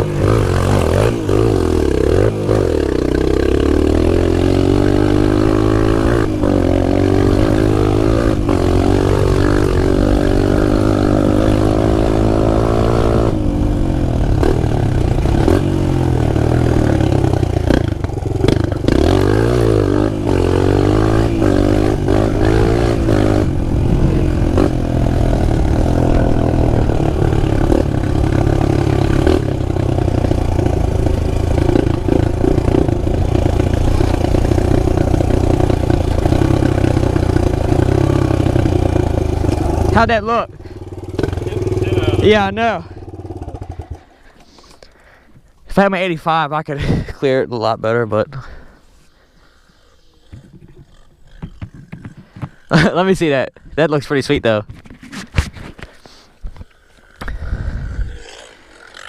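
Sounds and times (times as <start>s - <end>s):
small engine revving: 0.0s - 44.6s, 56.7s - 59.0s.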